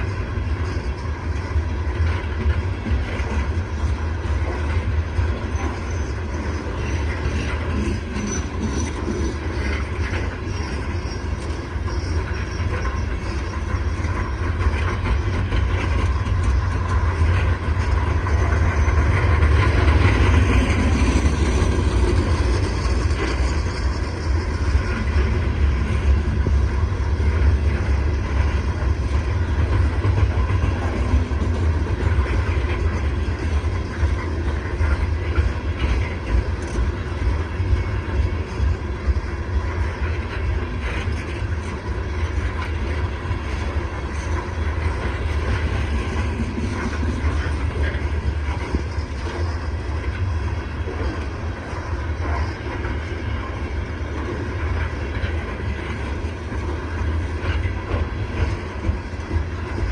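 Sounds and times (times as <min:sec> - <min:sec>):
train cars rolling past: 0:00.0 - 0:59.9.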